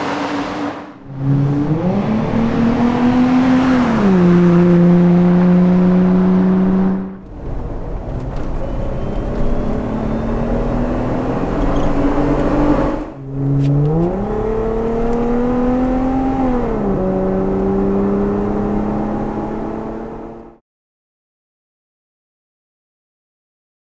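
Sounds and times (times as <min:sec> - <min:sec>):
car engine running: 0:00.0 - 0:20.5.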